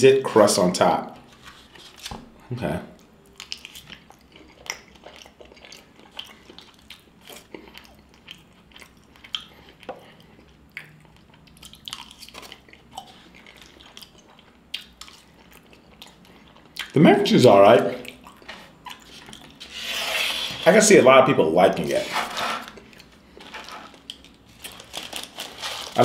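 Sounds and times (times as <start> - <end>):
person chewing with wet smacks: 3.0 - 17.0, 18.0 - 19.6, 22.8 - 24.7.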